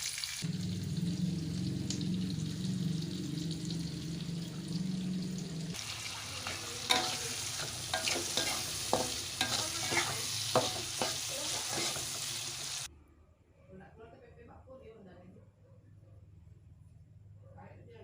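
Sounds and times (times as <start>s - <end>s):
shallots sizzling in oil: 0.0s - 12.9s
steady low hum: 0.4s - 5.8s
spatula scraping and knocking pan: 6.4s - 12.8s.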